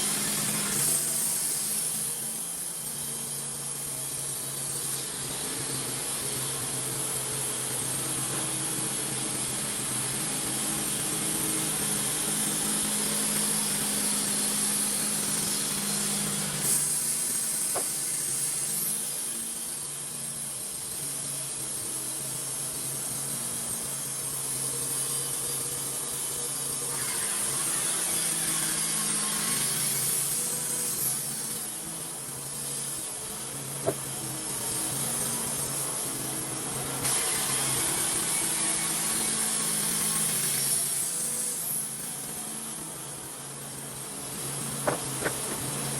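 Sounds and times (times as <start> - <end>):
sawmill engine droning: 24.4 - 45.9
band blade cutting through log: 44.8 - 45.9.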